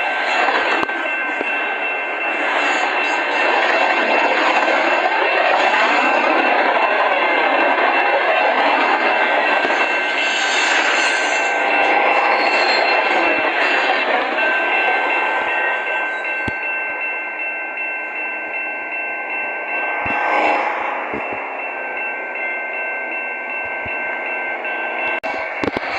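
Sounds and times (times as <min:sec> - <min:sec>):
freight train rumble and rattle: 0:00.0 - 0:25.9
high whine: 0:08.8 - 0:25.9.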